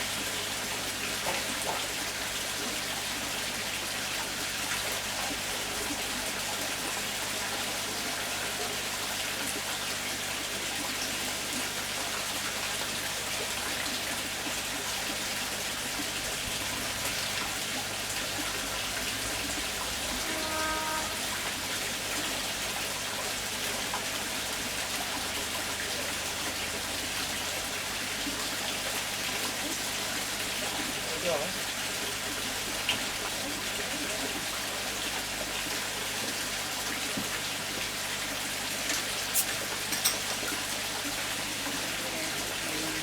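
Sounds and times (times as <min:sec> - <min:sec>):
brief pitched tone: 0:20.2 - 0:21.6.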